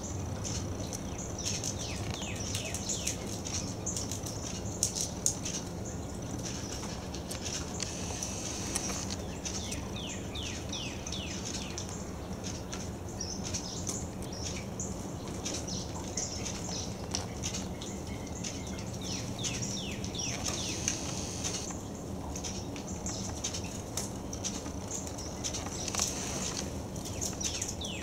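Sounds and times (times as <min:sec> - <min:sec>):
birds calling falling notes: 0:06.4 - 0:11.9, 0:15.4 - 0:21.9
high chirping: 0:19.1 - 0:21.7.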